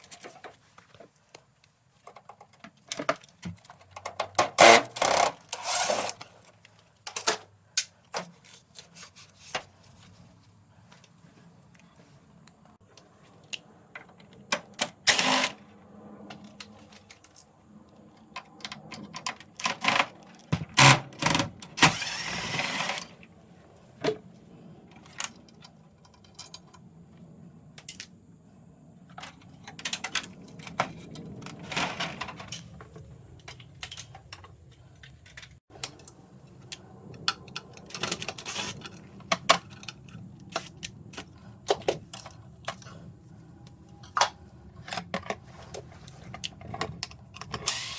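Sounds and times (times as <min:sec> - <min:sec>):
tools and parts clattering: 0:02.0 - 0:10.2, 0:24.9 - 0:26.9, 0:29.1 - 0:36.1, 0:37.4 - 0:43.2, 0:43.8 - 0:47.9.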